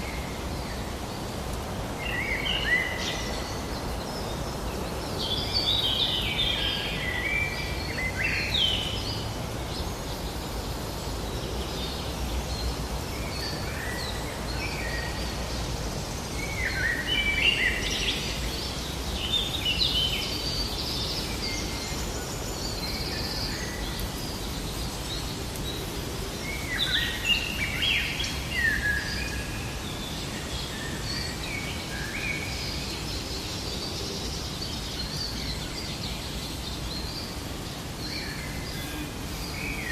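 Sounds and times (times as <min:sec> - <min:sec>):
low outdoor background noise: 0:00.0 - 0:39.9.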